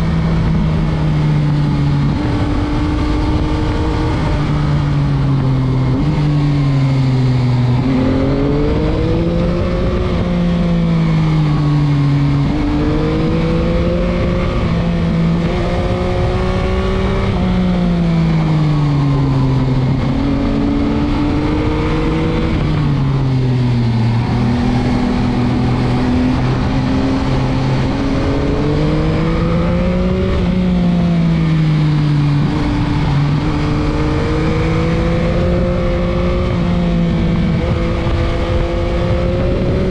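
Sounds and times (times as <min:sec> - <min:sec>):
motorcycle engine revving: 0:00.0 - 0:39.9
wind rush: 0:12.1 - 0:39.9.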